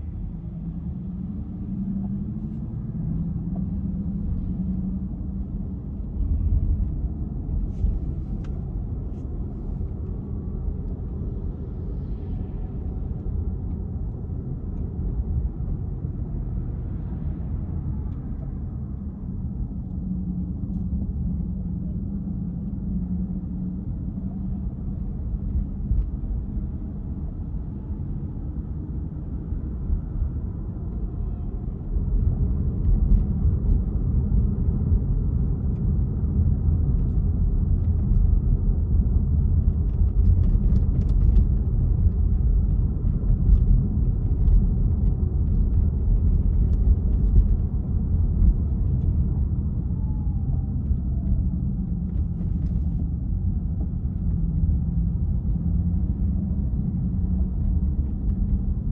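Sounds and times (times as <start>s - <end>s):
car road and engine rumble: 0.0s - 58.9s.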